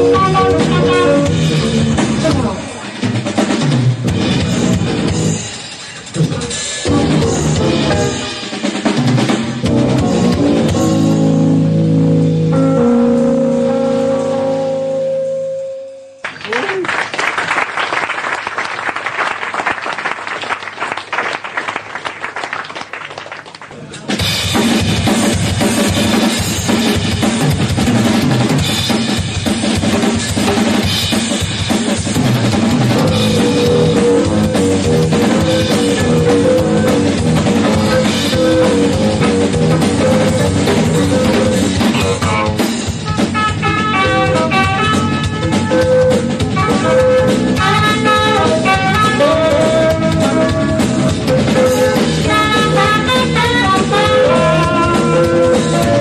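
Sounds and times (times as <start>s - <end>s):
live jazz band: 0.0s - 5.4s, 6.1s - 14.9s, 24.5s - 56.0s
bass drum and snare: 0.0s - 5.6s, 24.0s - 56.0s
audience applause: 16.2s - 23.9s.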